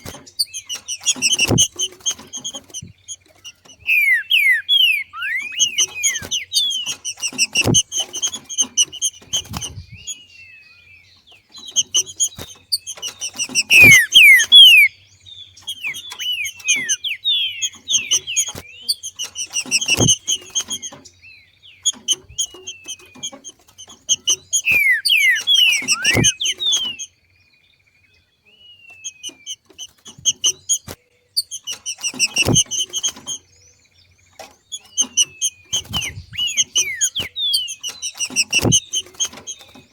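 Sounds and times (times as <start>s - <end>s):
bird chattering and whistling: 0.0s - 27.2s, 28.4s - 39.9s.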